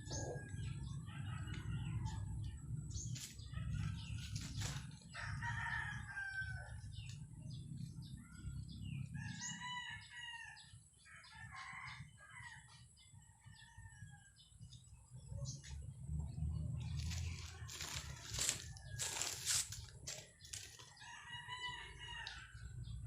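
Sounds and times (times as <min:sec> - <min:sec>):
low steady rumble: 0:00.0 - 0:11.0, 0:13.5 - 0:20.6
rooster crowing: 0:05.1 - 0:06.9, 0:09.2 - 0:12.7, 0:20.9 - 0:22.6.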